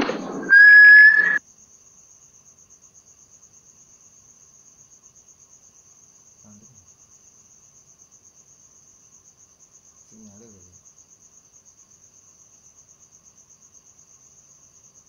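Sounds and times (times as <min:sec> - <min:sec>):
crickets chirping: 0:00.0 - 0:15.0
loud whistle-like tone: 0:00.2 - 0:01.4.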